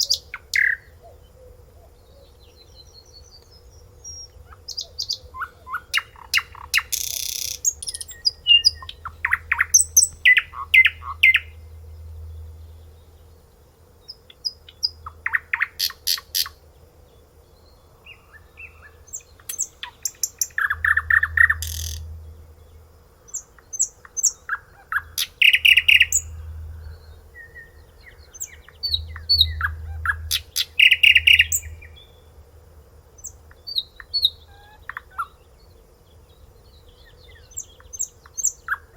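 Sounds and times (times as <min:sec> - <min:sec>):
songbird singing trills: 0:00.0 - 0:32.4, 0:33.0 - 0:38.9.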